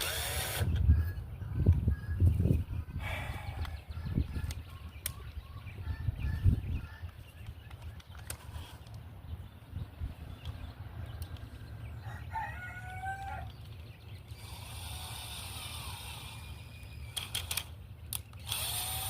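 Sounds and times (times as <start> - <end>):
cordless drill driving screw: 0.0 - 0.8, 14.4 - 19.0
rooster crowing: 12.0 - 13.5.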